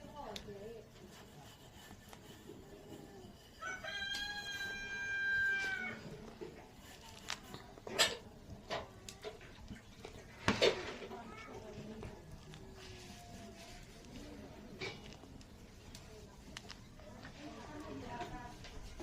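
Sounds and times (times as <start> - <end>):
rooster crowing: 3.6 - 6.1.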